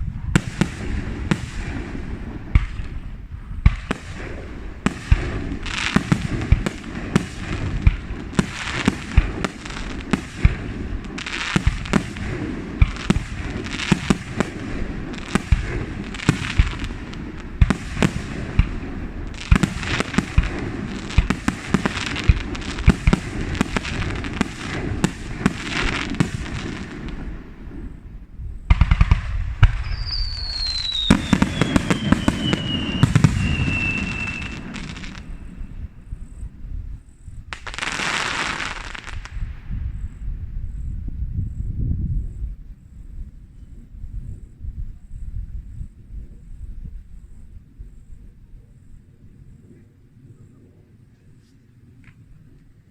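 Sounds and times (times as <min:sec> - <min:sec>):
fireworks bangs and crackles: 0:00.0 - 0:41.6
firework whistle sliding down: 0:29.7 - 0:36.0.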